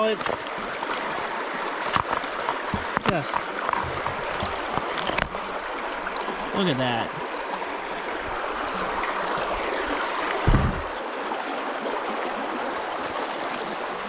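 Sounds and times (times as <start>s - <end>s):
creek water over stones: 0.0s - 14.0s
low thump: 10.4s - 11.0s.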